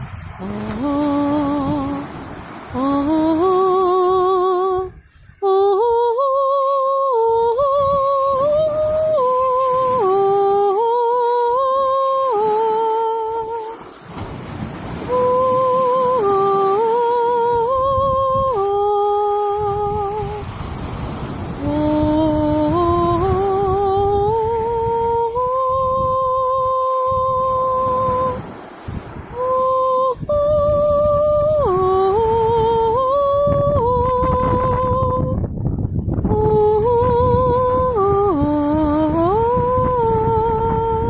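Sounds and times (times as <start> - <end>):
woman humming: 2.8 - 13.8, 21.6 - 28.4, 29.3 - 35.4, 36.2 - 41.0.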